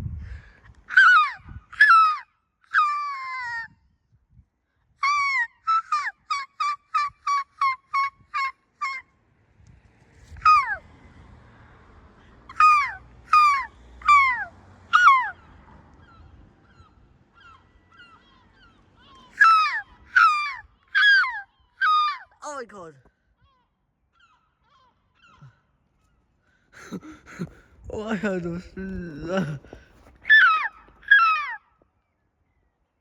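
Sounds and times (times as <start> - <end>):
seagulls calling: 0.9 - 3.7, 5.0 - 9.2, 10.4 - 10.9, 12.5 - 22.4, 23.3 - 31.8
faint low rumble: 27.0 - 30.2.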